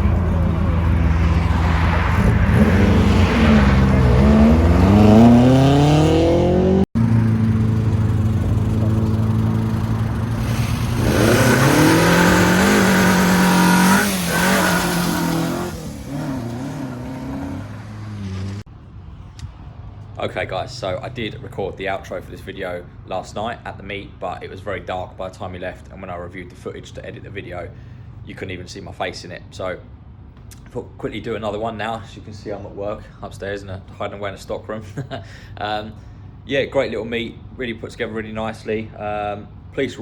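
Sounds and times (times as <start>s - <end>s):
car engines revving: 0.0s - 18.7s.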